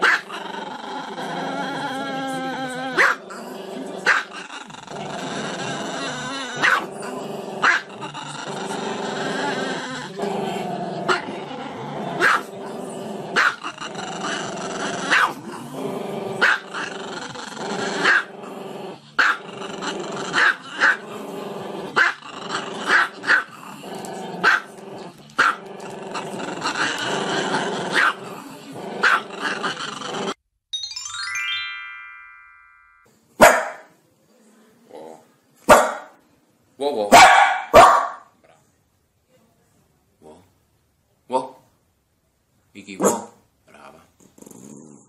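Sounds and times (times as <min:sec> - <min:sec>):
dog barking sharply: 0:33.4 - 0:33.9, 0:35.7 - 0:36.1, 0:37.1 - 0:38.3, 0:43.0 - 0:43.4.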